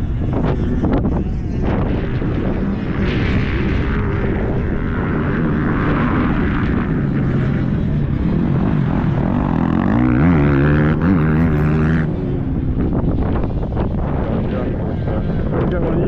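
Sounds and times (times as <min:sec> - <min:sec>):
motocross bike engine revving: 0:04.3 - 0:12.2.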